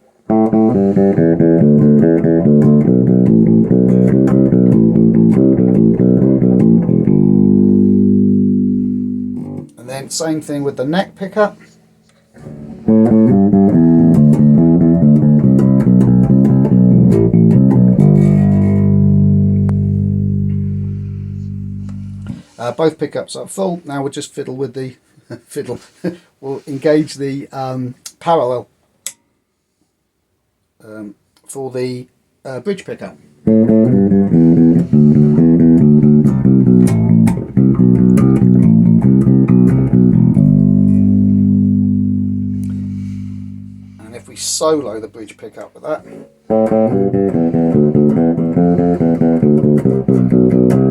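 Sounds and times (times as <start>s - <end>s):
bass guitar plucked notes: 0.3s - 22.4s, 33.0s - 45.2s, 46.0s - 50.9s.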